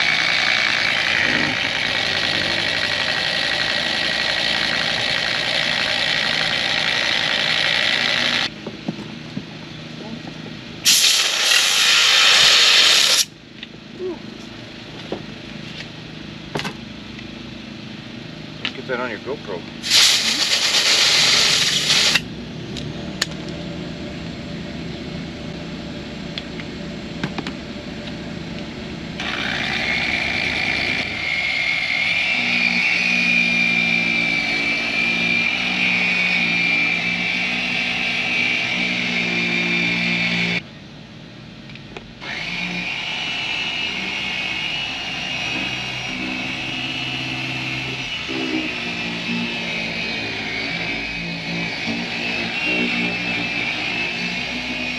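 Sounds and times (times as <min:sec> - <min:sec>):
polisher whining: 0:00.0 - 0:08.5, 0:19.8 - 0:22.2, 0:29.2 - 0:40.6, 0:42.2 - 0:54.9
loud hissing rush: 0:10.8 - 0:13.3, 0:19.8 - 0:22.2.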